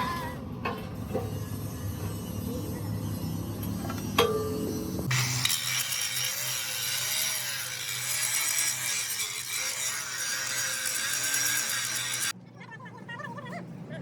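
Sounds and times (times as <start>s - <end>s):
power tool cutting: 5.0s - 12.4s.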